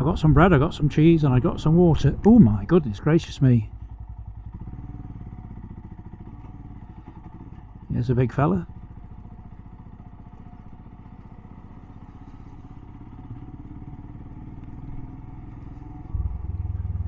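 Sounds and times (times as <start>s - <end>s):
motorcycle engine running: 0.0s - 17.0s
loud low rumble: 16.0s - 17.0s.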